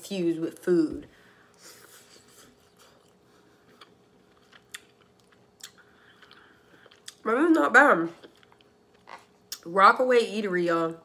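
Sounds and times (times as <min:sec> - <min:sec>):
faint chewing: 0:01.5 - 0:07.2, 0:08.2 - 0:09.6.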